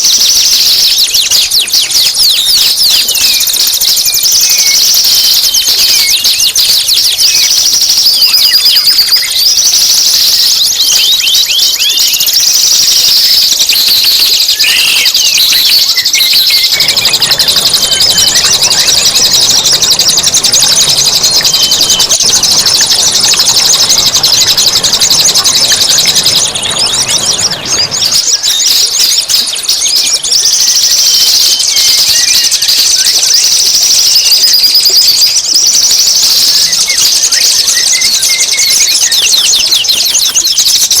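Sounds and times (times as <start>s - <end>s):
songbird trills and chirps: 0.0s - 41.0s.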